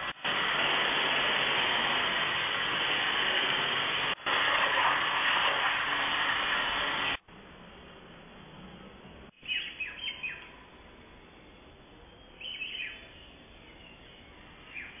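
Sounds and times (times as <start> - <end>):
small birds chirping: 9.0 - 10.6, 12.0 - 15.0.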